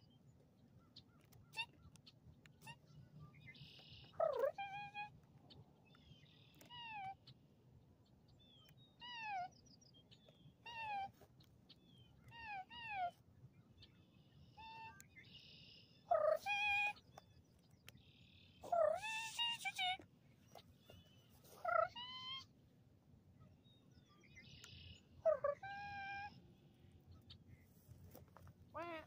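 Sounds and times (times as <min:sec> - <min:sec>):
birds mewing calls: 0:00.7 - 0:07.5, 0:24.3 - 0:29.0.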